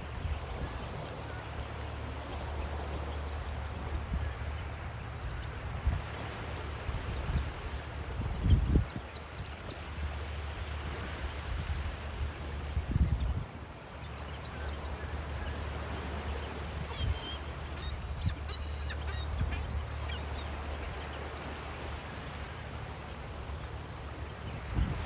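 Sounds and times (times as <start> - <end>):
ocean waves: 0.0 - 25.0
seagulls calling: 13.9 - 25.0.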